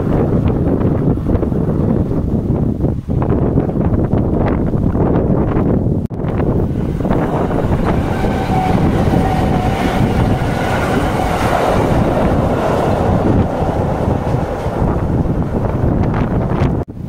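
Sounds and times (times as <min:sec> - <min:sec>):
train rumbling over bridge: 0:00.0 - 0:17.0
wind buffeting microphone: 0:00.0 - 0:17.0.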